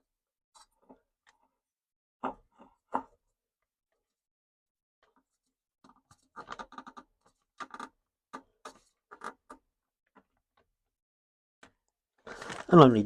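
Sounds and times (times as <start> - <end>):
hands scraping and clicking on metal: 5.9 - 9.6.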